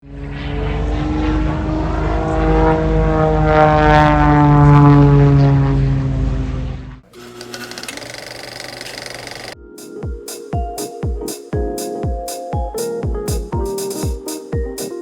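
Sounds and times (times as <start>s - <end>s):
propeller airplane flying past: 0.0s - 7.0s.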